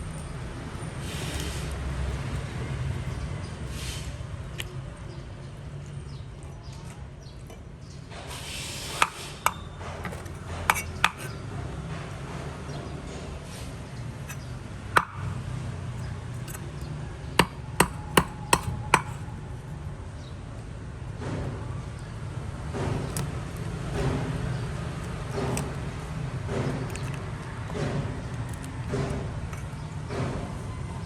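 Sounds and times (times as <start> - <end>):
sharp knocks on hard object: 15.0 - 15.4, 17.4 - 19.2.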